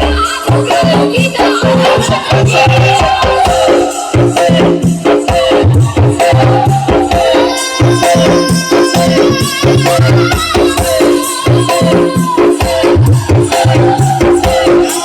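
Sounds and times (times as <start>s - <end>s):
loud dance music: 0.0s - 15.0s.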